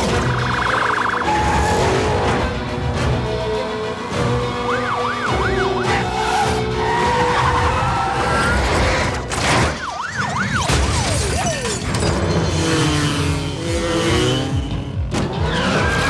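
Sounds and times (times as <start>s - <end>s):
police sirens yelping: 0.0s - 2.2s, 4.5s - 8.8s, 9.7s - 11.8s
music: 0.0s - 16.0s
car engines rumbling: 11.6s - 16.0s.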